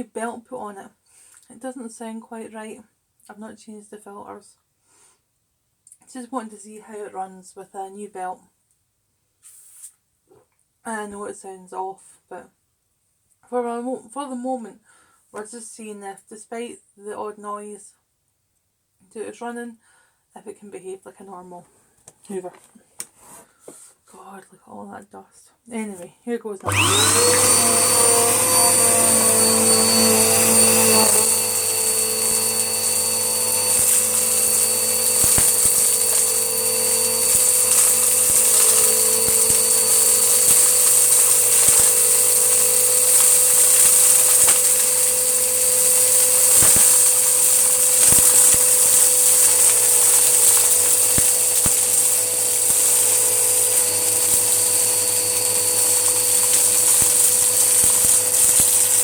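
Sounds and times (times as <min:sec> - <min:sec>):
vacuum cleaner motor whining: 0:26.6 - 0:59.0.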